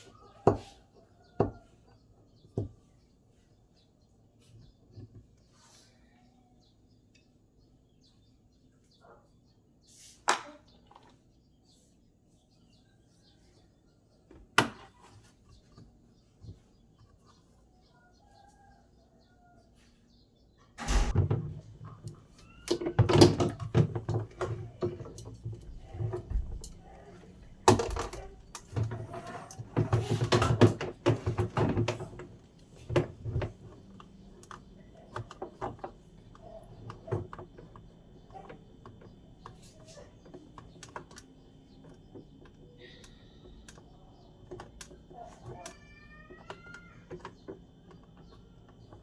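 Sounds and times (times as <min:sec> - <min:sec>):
hard parts knocking and clattering: 0:20.8 - 0:41.2.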